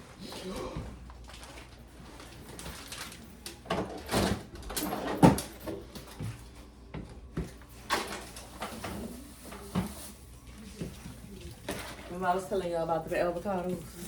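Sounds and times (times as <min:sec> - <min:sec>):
household knocks and clatters: 0:01.4 - 0:06.4.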